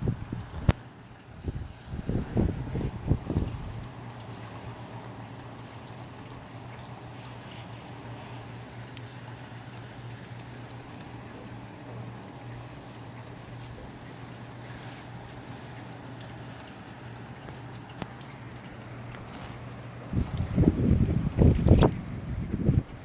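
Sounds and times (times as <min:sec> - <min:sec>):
rain falling and trickling: 0:00.0 - 0:23.0
drops ticking: 0:08.8 - 0:23.0.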